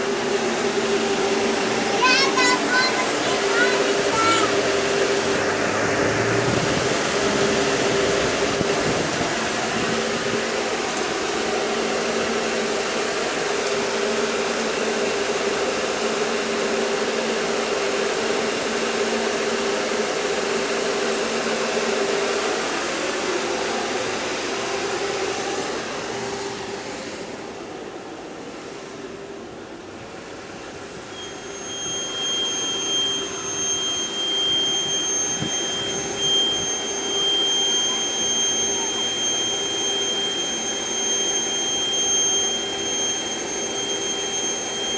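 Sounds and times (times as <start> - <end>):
bus engine humming: 0.0 - 12.1
high-pitched whine: 0.0 - 14.0, 30.9 - 44.9.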